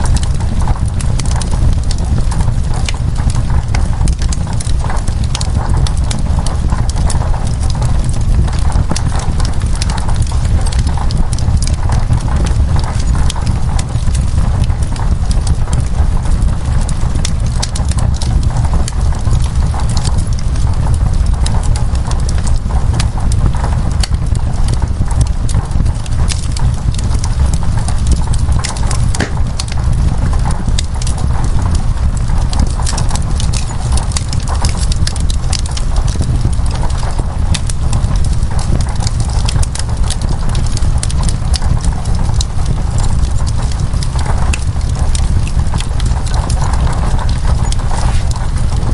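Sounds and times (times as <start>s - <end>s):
rain on window glass: 0.0s - 48.9s
wood fire crackling: 0.0s - 48.9s.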